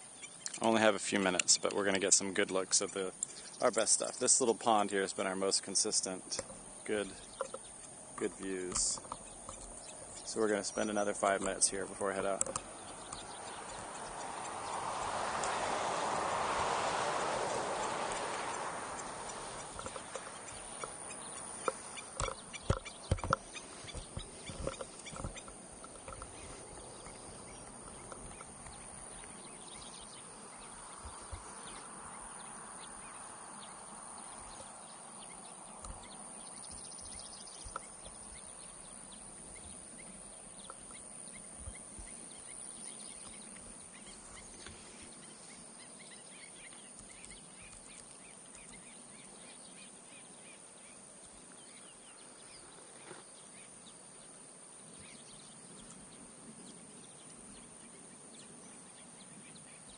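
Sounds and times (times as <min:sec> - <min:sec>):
sharp knocks and clicks: 0:21.6 - 0:26.4.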